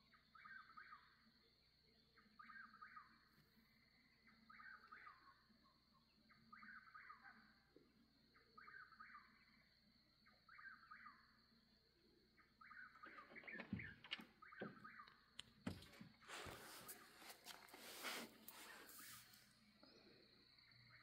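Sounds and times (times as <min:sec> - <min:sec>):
sharp clicks and knocks: 0:13.0 - 0:16.2
faint bird calling: 0:16.3 - 0:21.0.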